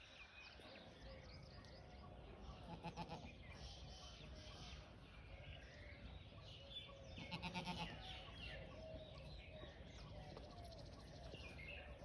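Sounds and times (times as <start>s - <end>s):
birds chirping and singing: 0.0s - 12.0s
goat bleating: 2.7s - 3.3s, 7.2s - 8.0s.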